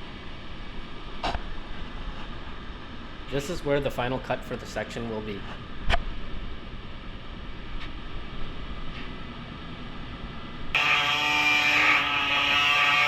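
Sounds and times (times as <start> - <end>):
power cutting tool whining: 10.8 - 13.0.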